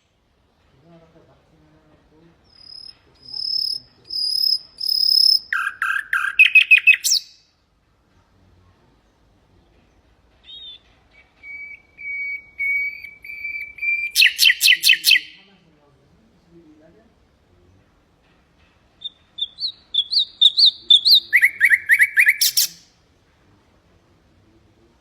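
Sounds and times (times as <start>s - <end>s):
nightingale singing: 2.4s - 7.5s, 10.4s - 15.5s, 19.0s - 23.0s.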